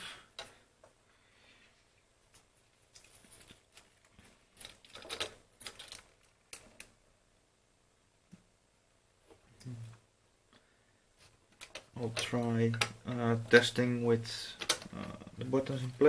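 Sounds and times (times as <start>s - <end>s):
small plastic parts clicking: 2.9s - 7.0s, 11.5s - 13.8s, 14.4s - 16.0s.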